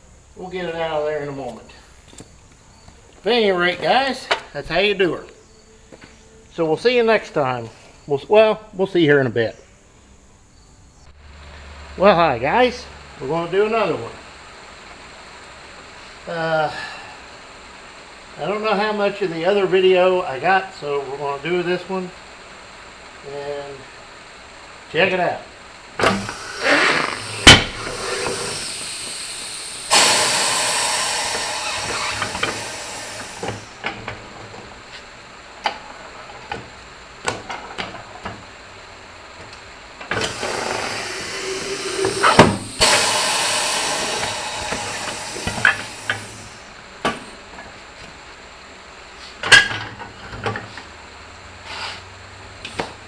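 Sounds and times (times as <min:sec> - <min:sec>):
air hissing: 0:26.0 - 0:35.1, 0:40.0 - 0:47.4.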